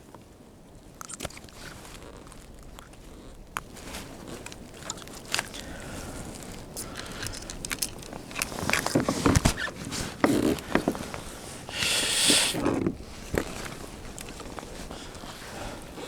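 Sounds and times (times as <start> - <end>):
light clicks and knocks: 3.5 - 11.2.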